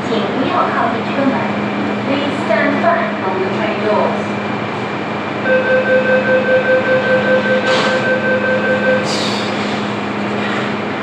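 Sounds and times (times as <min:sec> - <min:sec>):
train steady hum: 0:00.0 - 0:11.0
rapid pulsing warning beep: 0:05.4 - 0:09.1.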